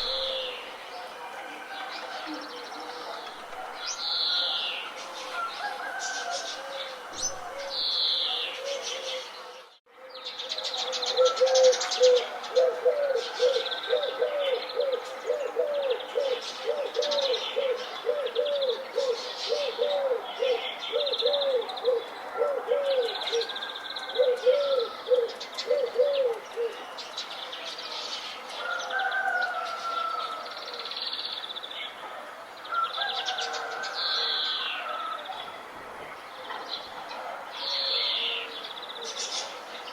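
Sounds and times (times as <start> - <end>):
dove cooing: 0.0 - 0.8, 5.9 - 9.4, 10.6 - 26.9
birdsong chorus: 0.0 - 39.9.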